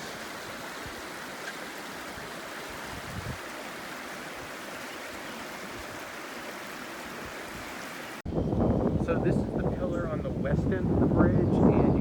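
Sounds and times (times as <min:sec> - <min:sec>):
river rushing over rocks: 0:00.0 - 0:08.2.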